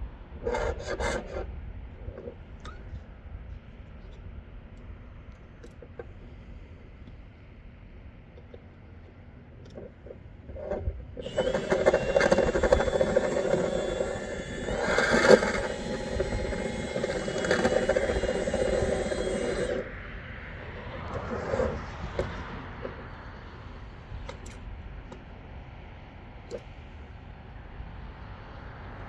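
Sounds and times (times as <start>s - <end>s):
electric motor running: 11.2s - 20.0s.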